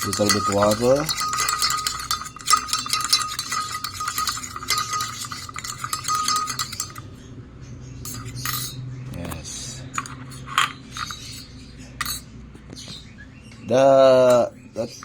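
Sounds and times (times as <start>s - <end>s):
spoon stirring in glass jar: 0.0s - 7.1s, 8.0s - 8.8s, 10.0s - 12.3s, 13.6s - 15.0s.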